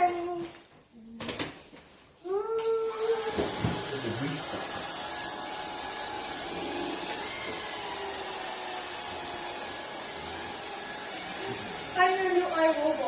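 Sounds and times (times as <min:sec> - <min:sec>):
vacuum cleaner running: 0:02.8 - 0:13.0.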